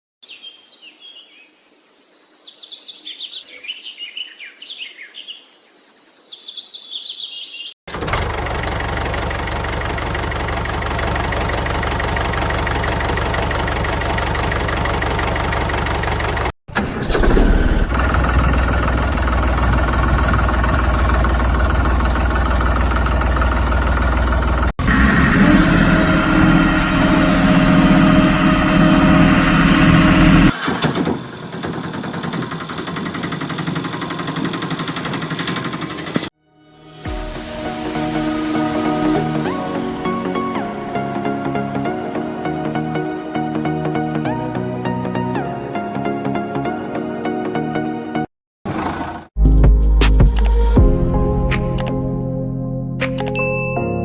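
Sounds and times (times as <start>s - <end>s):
birds chirping: 0.2s - 7.8s
engine with strong low hum: 7.9s - 36.3s
engine running: 7.9s - 36.4s, 48.7s - 49.4s.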